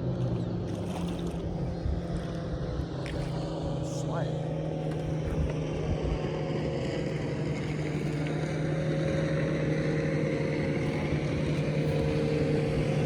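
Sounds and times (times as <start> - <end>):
boat motor humming: 0.0 - 13.0
wind on microphone: 0.9 - 3.8, 5.0 - 6.5, 10.7 - 13.0.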